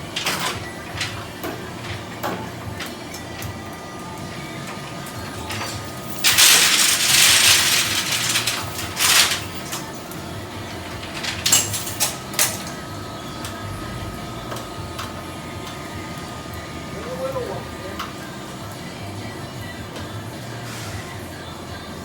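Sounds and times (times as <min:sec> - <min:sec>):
metal rattling and scraping: 0:05.4 - 0:16.3.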